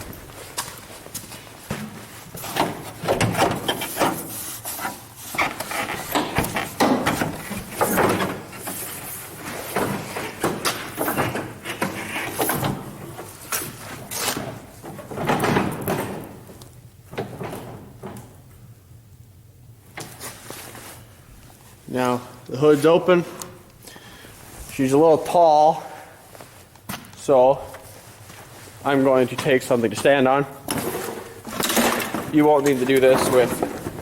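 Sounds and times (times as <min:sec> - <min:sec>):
metal hood clunks and rattles: 0:01.7 - 0:04.4, 0:05.4 - 0:08.9, 0:14.4 - 0:18.5.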